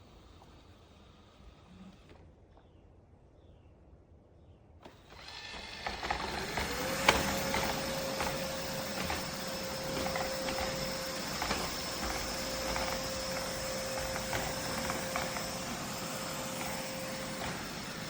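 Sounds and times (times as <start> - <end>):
robot vacuum motor whine and hum: 4.8 - 18.0
scattered clicks and knocks: 5.8 - 15.7.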